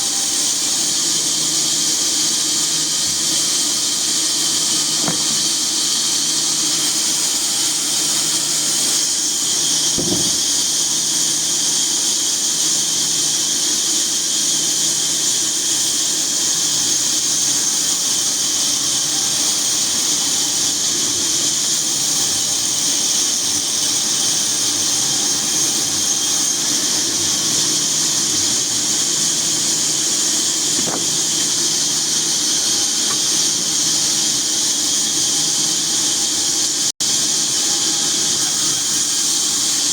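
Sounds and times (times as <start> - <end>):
saw cutting log hiss: 0.0 - 39.9
short knock: 5.0 - 5.5, 10.0 - 10.6, 30.8 - 31.5.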